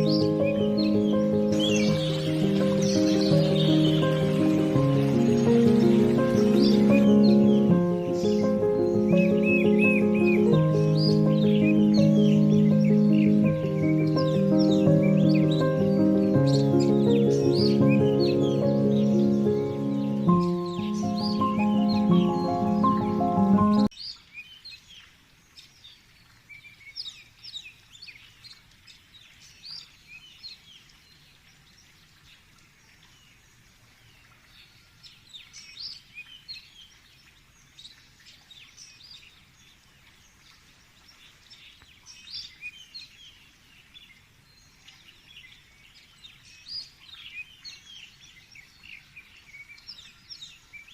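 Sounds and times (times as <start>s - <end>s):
small birds chirping: 0.0s - 50.9s.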